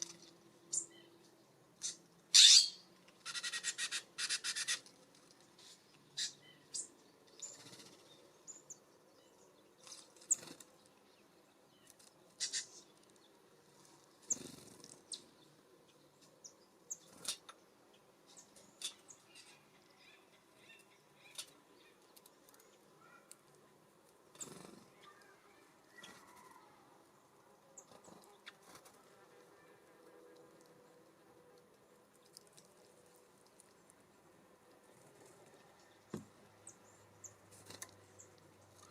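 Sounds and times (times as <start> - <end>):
faint high bird chirps: 0.0 - 1.2, 14.2 - 23.4, 24.3 - 26.9
wing flutters: 9.8 - 10.8, 24.3 - 25.2
birds tapping and pecking: 37.4 - 38.9.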